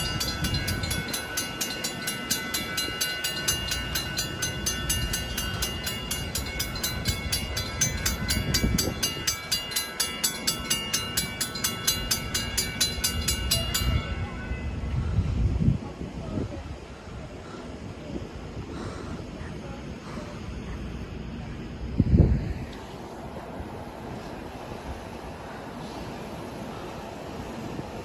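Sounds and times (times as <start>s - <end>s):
crossing bell ringing: 0.0s - 15.0s
train rumble: 0.0s - 28.0s.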